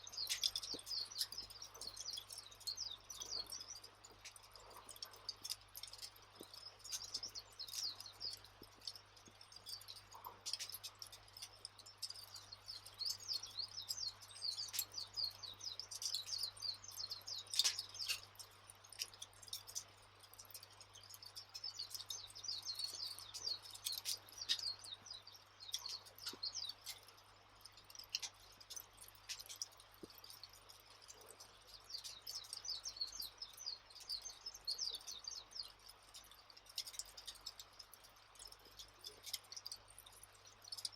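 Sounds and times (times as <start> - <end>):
small bird chirping: 0.0 - 40.9
wood fire crackling: 0.0 - 40.9.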